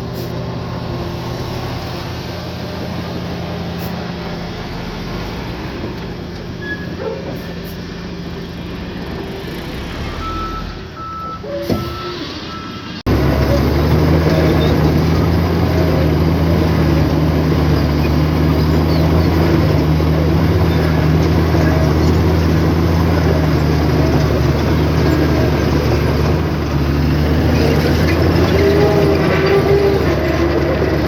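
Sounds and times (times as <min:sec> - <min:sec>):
heavy diesel engine droning: 0:00.0 - 0:31.0.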